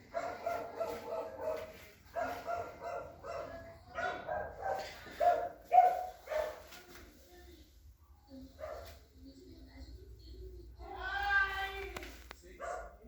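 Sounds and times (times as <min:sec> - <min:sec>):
dog barking: 0:00.0 - 0:06.7, 0:08.6 - 0:09.0, 0:12.6 - 0:13.0.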